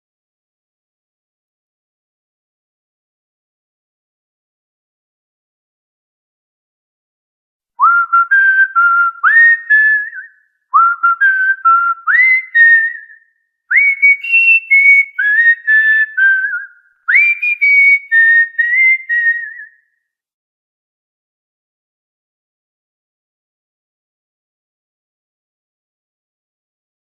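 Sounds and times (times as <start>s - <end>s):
cockatiel whistling a tune: 7.8s - 19.8s.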